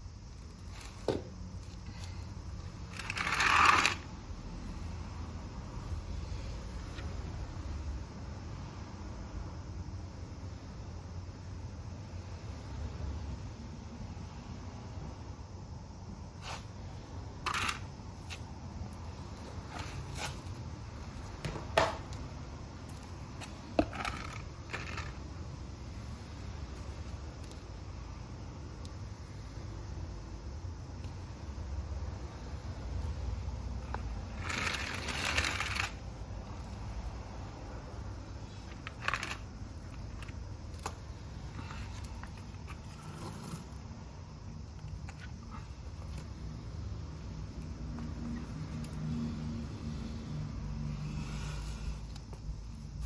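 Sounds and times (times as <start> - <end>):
rustling scrape: 0.6 - 4.1, 16.4 - 16.7, 19.4 - 20.6, 34.3 - 36.0
plants and pots rustling: 17.4 - 22.2, 33.6 - 44.0.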